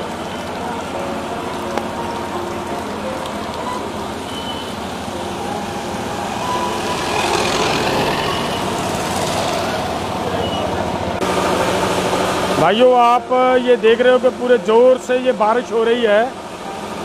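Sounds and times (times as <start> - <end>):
heavy rain on flooded road: 0.0 - 12.8.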